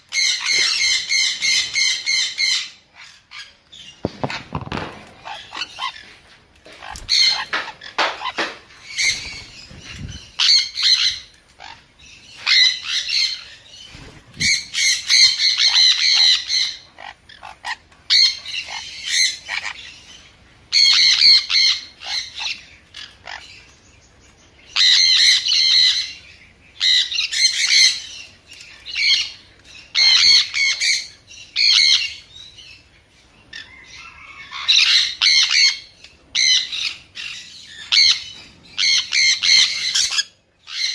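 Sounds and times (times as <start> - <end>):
parrot screeching: 33.5 - 37.3.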